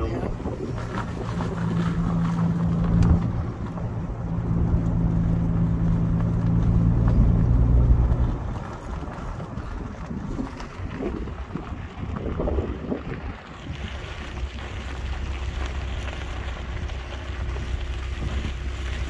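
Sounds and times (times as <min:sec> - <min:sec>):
car engine running: 0:00.0 - 0:19.0
wind noise: 0:00.0 - 0:19.0.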